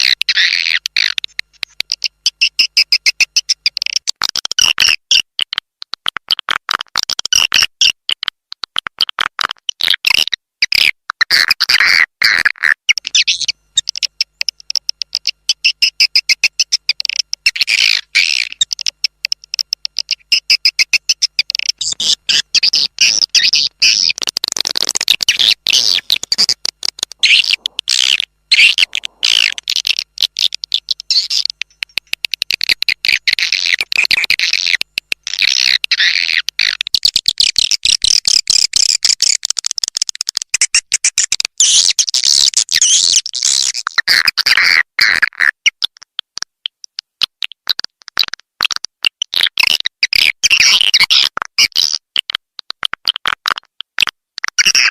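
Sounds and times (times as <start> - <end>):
swiftlet chirps and twitters: 12.9 - 39.4.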